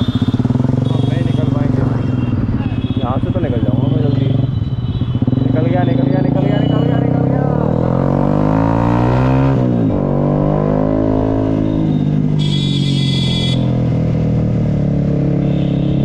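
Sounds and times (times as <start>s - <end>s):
vehicle horn: 0.0s - 7.4s, 11.4s - 13.8s, 15.4s - 16.0s
motorcycle engine revving: 0.0s - 16.0s.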